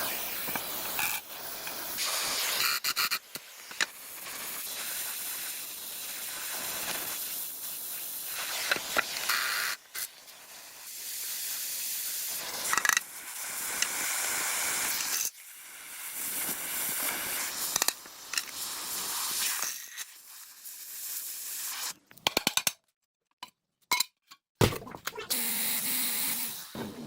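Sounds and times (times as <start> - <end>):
hissing spray: 0.0 - 10.1, 25.3 - 26.8.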